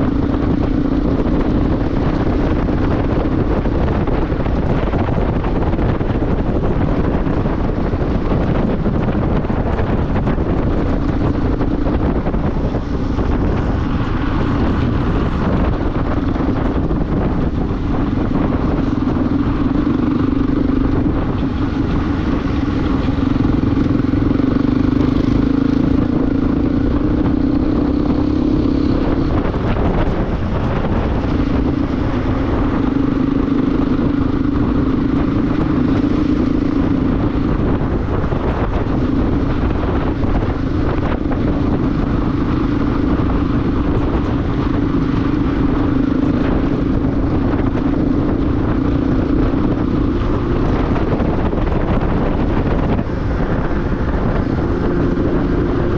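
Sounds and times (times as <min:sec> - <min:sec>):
motorcycle engine cruising: 0:00.0 - 0:55.9
wind noise: 0:00.0 - 0:55.9.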